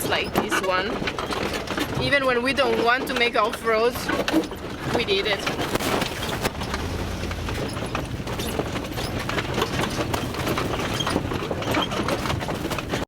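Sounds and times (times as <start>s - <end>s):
rattling and knocking: 0.0s - 13.0s
van engine drone: 5.6s - 13.0s.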